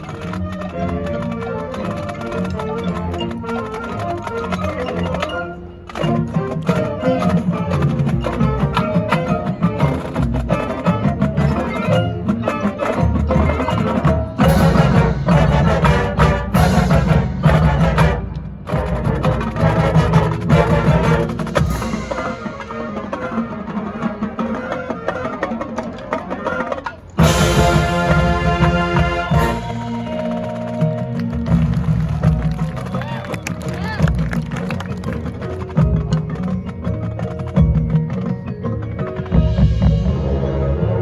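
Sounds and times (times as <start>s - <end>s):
marching band playing: 0.0s - 41.0s
percussion: 0.0s - 41.0s.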